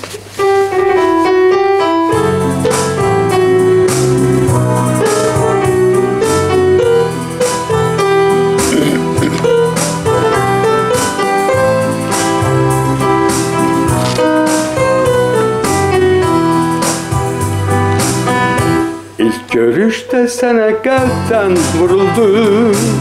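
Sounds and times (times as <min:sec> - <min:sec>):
keyboard chords over bass line: 0:00.7 - 0:19.5, 0:20.7 - 0:23.0.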